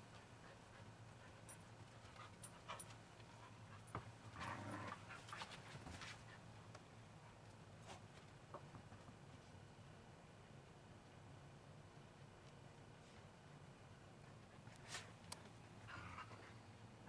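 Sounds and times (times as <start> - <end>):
dog panting quietly: 0.0 - 4.3, 13.0 - 16.8.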